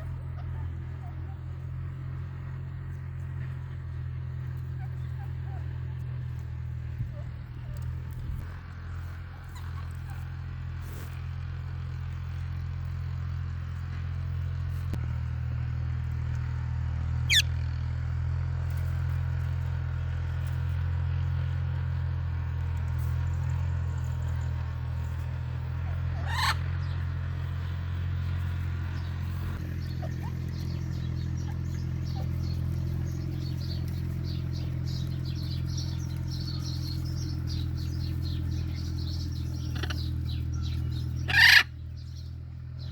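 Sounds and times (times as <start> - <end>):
sharp bird calls: 17.2 - 17.6, 24.2 - 42.9
steady low hum: 21.5 - 42.9.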